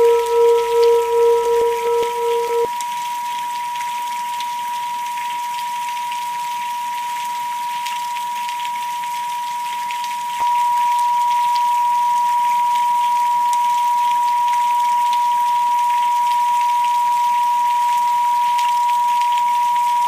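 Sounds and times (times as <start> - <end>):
steady pure tone: 0.0 - 2.7
rain with pattering drops: 2.8 - 20.0.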